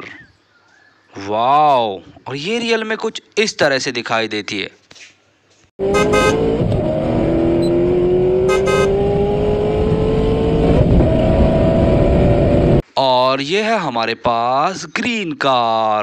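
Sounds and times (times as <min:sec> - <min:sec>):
cartoon car engine accelerating: 0:05.8 - 0:12.8
high double beep: 0:05.9 - 0:06.4, 0:08.4 - 0:09.0.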